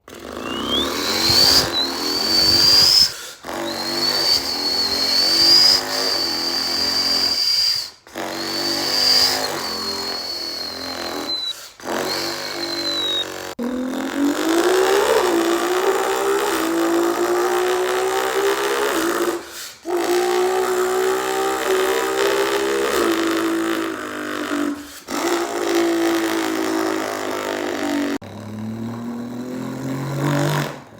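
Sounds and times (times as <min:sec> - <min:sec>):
person imitating car engine: 0:00.0 - 0:07.5, 0:08.2 - 0:30.9
short breaths: 0:00.4 - 0:05.2, 0:07.4 - 0:13.5, 0:19.4 - 0:20.0, 0:24.7 - 0:25.2.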